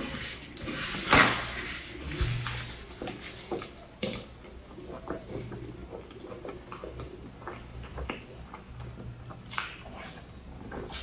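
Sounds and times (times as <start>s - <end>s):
chewing with mouth clicks: 3.5s - 10.9s.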